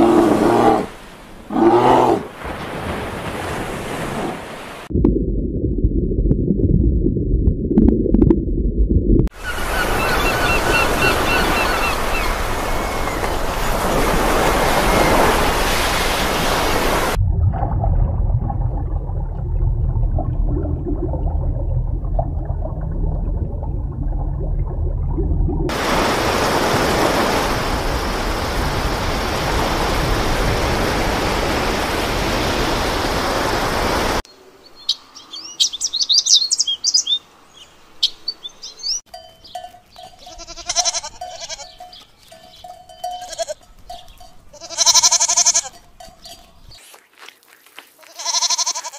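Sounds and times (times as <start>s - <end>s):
rushing underwater sea noise: 0.0s - 4.9s, 9.3s - 34.2s.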